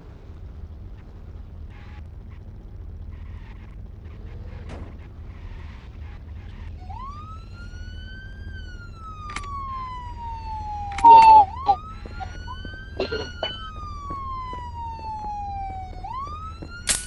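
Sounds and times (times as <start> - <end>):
low vehicle rumble: 0.0 - 17.0
police siren wailing: 6.6 - 17.0.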